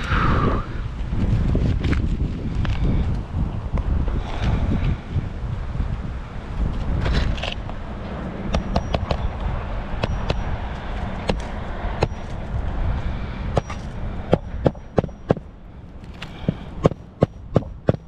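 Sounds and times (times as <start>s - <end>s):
wind rumble on microphone: 0.0s - 18.0s
hammer striking roofing nail: 13.6s - 15.5s, 16.4s - 18.0s.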